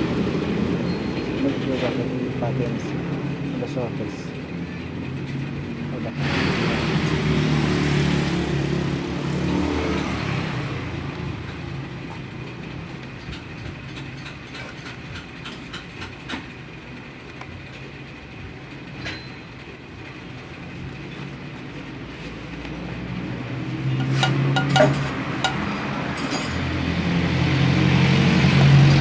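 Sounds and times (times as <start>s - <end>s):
vehicle engine passing: 6.0s - 13.1s, 21.7s - 29.0s.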